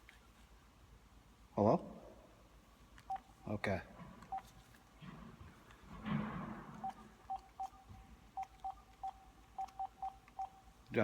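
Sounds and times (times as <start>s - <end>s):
phone keypad beeps: 6.8s - 10.7s.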